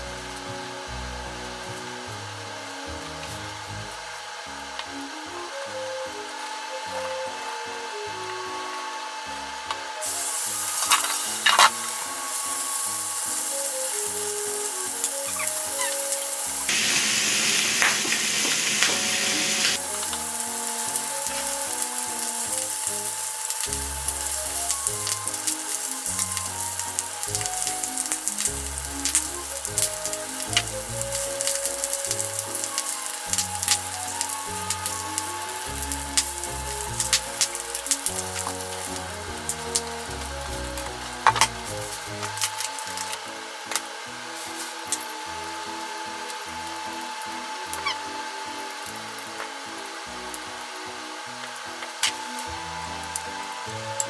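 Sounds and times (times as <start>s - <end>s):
light background music: 0.0s - 54.0s
chicken sizzling in a pan: 9.3s - 54.0s.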